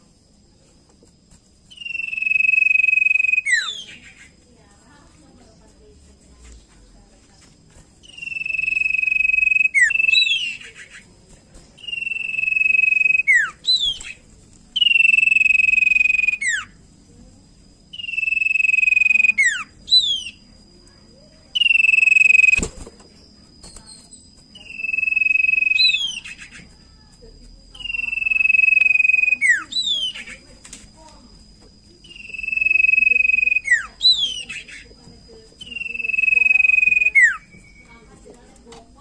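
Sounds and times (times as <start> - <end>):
bird singing whistled phrases: 1.7 - 4.3, 8.0 - 11.0, 11.8 - 14.2, 14.8 - 16.8, 17.9 - 20.5, 21.5 - 22.7, 23.8 - 26.8, 27.7 - 30.4, 32.0 - 34.9, 35.6 - 38.1
faint steady high tone: 14.8 - 17.3, 23.7 - 39.0.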